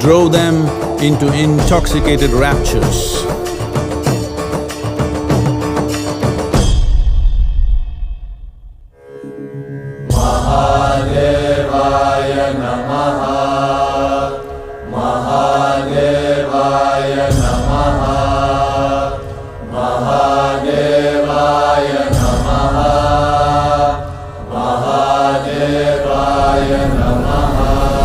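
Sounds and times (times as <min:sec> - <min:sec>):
mantra chanting: 0:00.0 - 0:03.9
music with low drone: 0:00.0 - 0:28.0.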